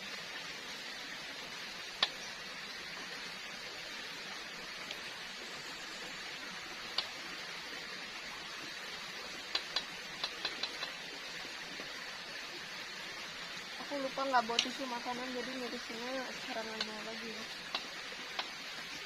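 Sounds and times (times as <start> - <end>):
steady hiss: 0.0 - 19.0
sharp clicks: 9.5 - 11.0, 14.5 - 14.8, 17.6 - 18.6.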